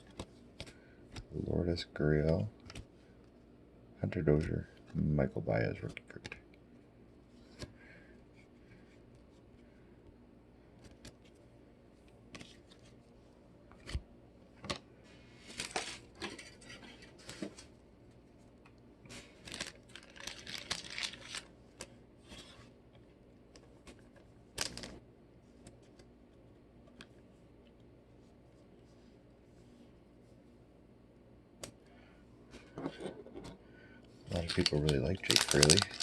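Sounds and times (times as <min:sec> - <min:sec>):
wrapper crinkling and tearing: 0:19.4 - 0:21.5, 0:24.6 - 0:25.0, 0:34.3 - 0:36.0.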